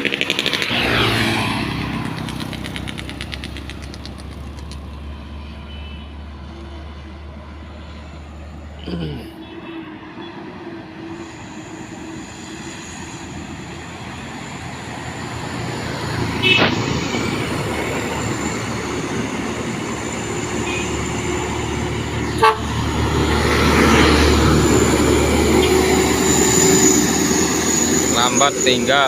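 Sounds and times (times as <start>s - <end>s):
truck diesel engine labouring: 10.8s - 29.0s
short horn toots: 22.3s - 22.7s.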